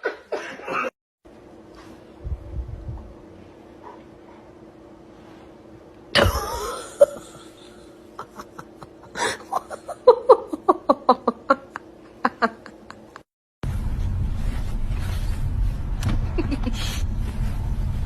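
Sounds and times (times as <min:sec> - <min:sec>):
person laughing: 0:06.2 - 0:13.3, 0:16.2 - 0:17.0.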